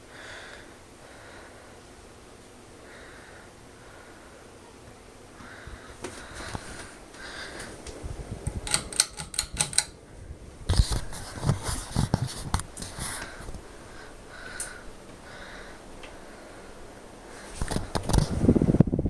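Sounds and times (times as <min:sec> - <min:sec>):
ceiling fan running: 0:00.0 - 0:19.0
rapid clicking and knocking: 0:08.5 - 0:10.0.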